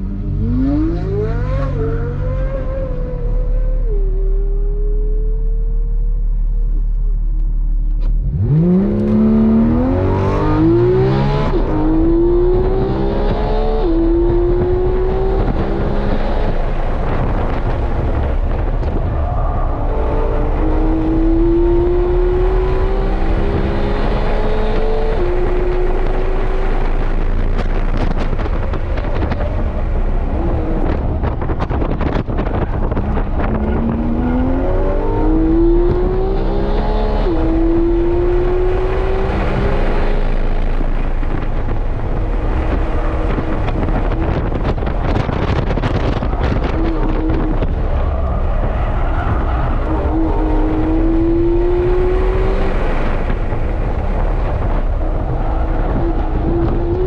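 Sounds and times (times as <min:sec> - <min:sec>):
car engine at full throttle: 0:00.0 - 0:57.0.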